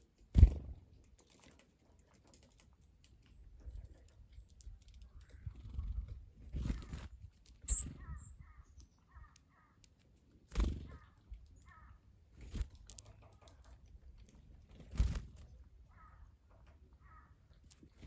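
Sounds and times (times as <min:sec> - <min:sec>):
crows cawing: 0:11.0 - 0:12.0, 0:15.9 - 0:16.3, 0:17.0 - 0:17.4.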